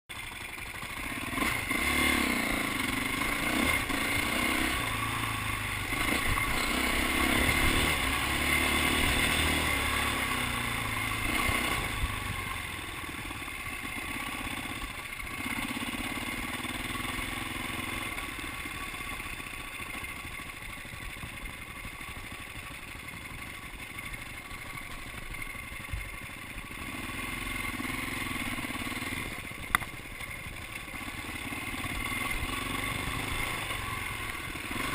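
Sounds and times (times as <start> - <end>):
dirt bike engine revving: 0.9 - 20.2, 26.6 - 29.9, 30.6 - 34.9.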